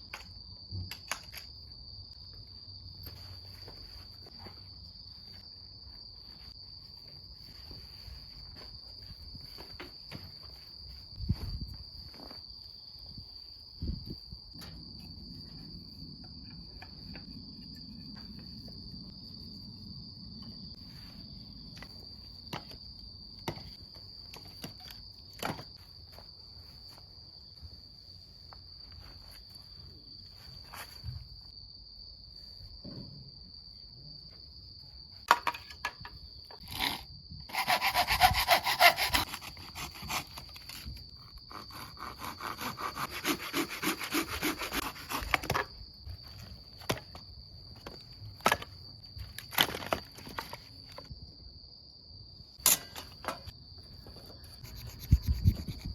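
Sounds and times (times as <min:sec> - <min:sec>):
high insect trill: 0:00.0 - 0:55.9
loud rhythmic rasping strokes: 0:37.5 - 0:40.2.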